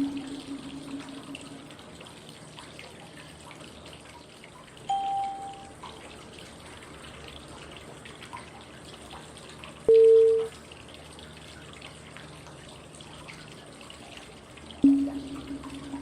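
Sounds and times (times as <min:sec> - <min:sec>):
water trickling with drips: 0:00.0 - 0:16.0
short clear cue tone: 0:04.9 - 0:05.7, 0:09.9 - 0:10.5, 0:14.8 - 0:16.0.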